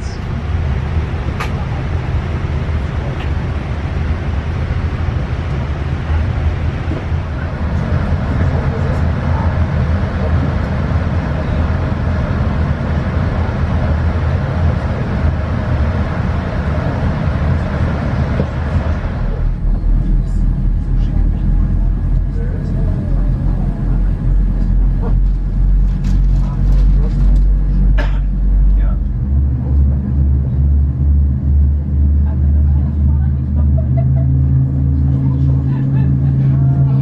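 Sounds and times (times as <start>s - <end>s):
airliner cabin rumble: 0.0s - 37.0s.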